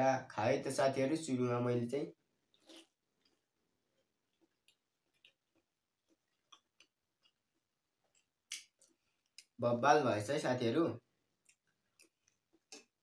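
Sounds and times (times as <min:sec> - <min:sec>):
soft chewing: 0:02.3 - 0:09.6, 0:11.2 - 0:13.0
wet mouth clicks: 0:08.1 - 0:09.6, 0:11.4 - 0:13.0.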